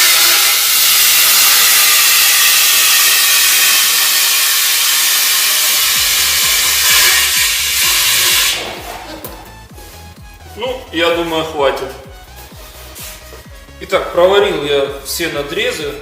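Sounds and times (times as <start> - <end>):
welding arc frying hiss: 0.0 - 9.6, 12.4 - 13.7.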